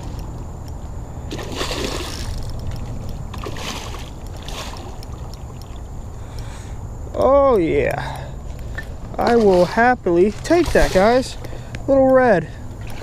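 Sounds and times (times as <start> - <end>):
steady low rumble: 0.0 - 13.0
fish splashing at water surface: 1.3 - 5.8.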